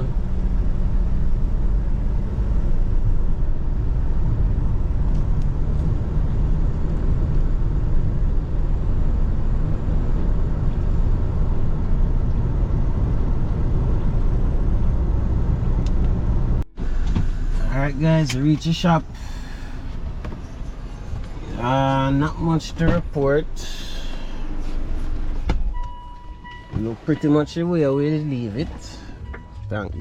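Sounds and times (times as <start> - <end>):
car engine and tyres rumbling: 0.0 - 30.0.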